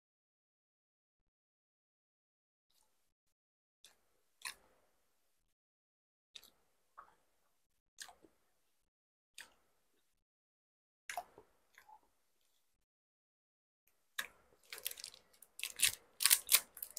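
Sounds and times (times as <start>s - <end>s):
chewing sticky rice cake: 14.2s - 16.9s.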